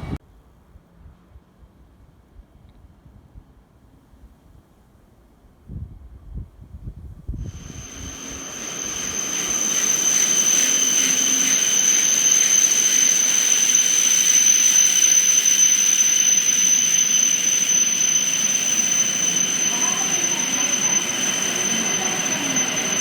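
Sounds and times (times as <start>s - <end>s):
high-speed train rushing past: 7.4s - 23.0s.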